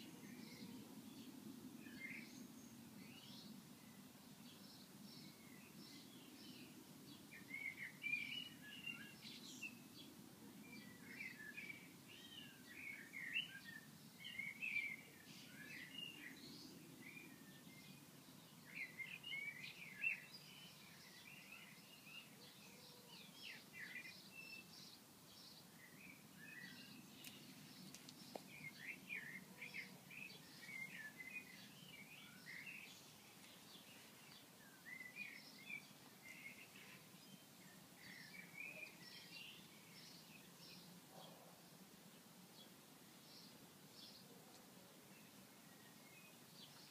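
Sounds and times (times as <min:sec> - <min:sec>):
small birds chirping: 0:00.0 - 0:46.9.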